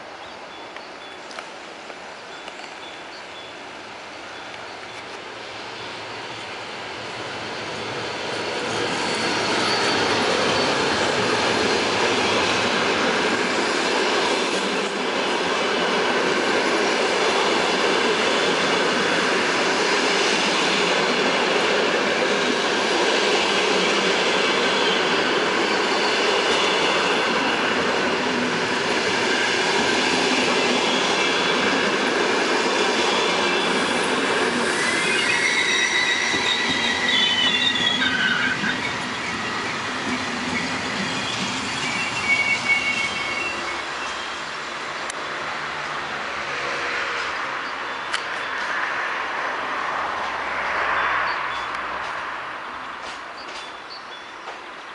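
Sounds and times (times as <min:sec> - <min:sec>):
train wheels rumbling on rails: 0:04.1 - 0:54.9
high wheel squeal: 0:07.5 - 0:12.6, 0:33.0 - 0:44.6.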